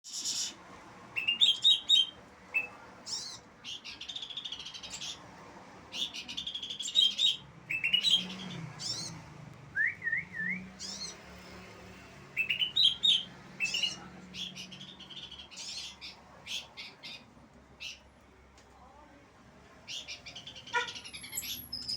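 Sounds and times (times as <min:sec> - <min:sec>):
bird chirping and trilling: 0:00.1 - 0:00.6, 0:01.2 - 0:05.2, 0:05.9 - 0:09.2, 0:09.8 - 0:11.4, 0:12.3 - 0:17.2, 0:19.9 - 0:21.9.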